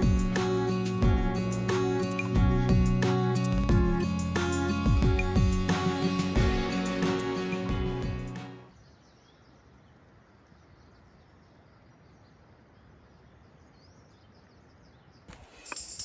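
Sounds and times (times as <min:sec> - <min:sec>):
background music: 0:00.0 - 0:08.7
faint outdoor ambience: 0:00.0 - 0:16.0.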